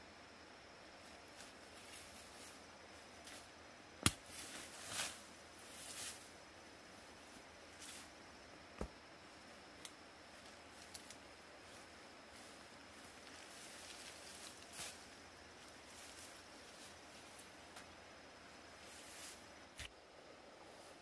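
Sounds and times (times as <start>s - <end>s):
background hiss: 0.0s - 21.0s
faint ticks: 9.8s - 10.0s, 10.8s - 11.2s.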